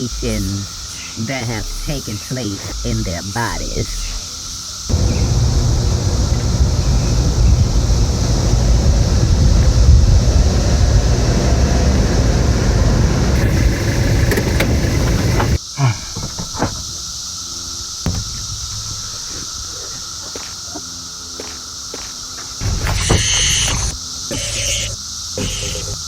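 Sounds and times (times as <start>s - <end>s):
cicadas droning: 0.0s - 26.0s
car road and engine rumble: 4.8s - 15.6s.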